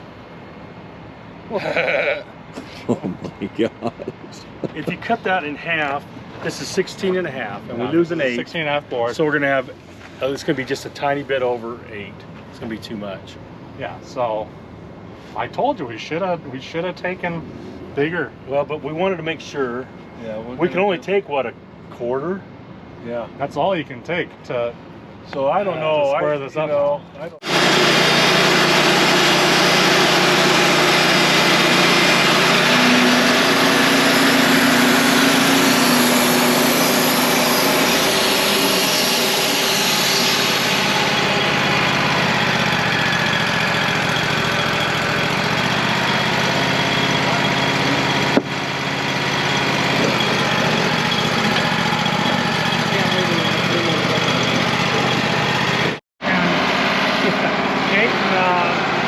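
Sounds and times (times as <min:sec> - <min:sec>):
sawmill engine running: 0:27.2 - 0:59.0
band saw cutting log: 0:27.4 - 0:59.0.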